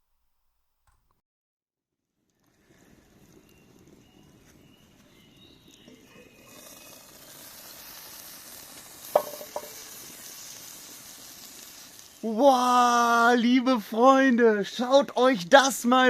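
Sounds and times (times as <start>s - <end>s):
soup sizzling and bubbling: 2.2s - 13.2s.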